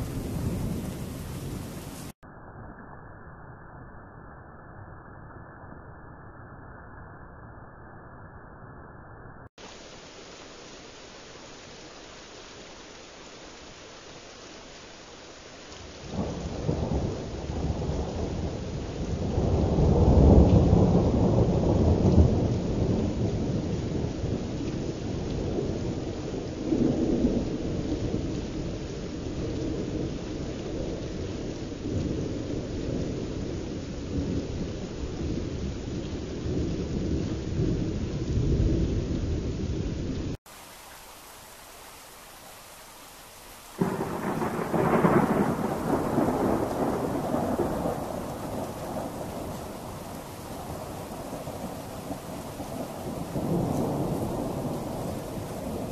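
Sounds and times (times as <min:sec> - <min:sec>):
rolling thunder: 0:00.0 - 0:02.2, 0:15.9 - 0:40.4, 0:43.8 - 0:55.9
steady rain: 0:00.0 - 0:02.2, 0:09.5 - 0:55.9.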